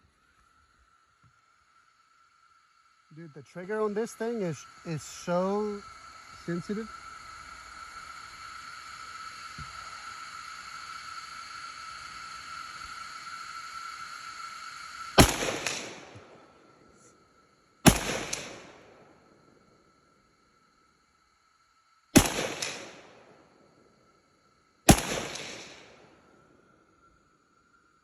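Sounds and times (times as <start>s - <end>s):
high-pitched hum: 3.2s - 16.4s
gunshots echoing: 15.2s - 16.3s, 17.9s - 18.9s, 22.2s - 23.1s, 24.9s - 26.0s.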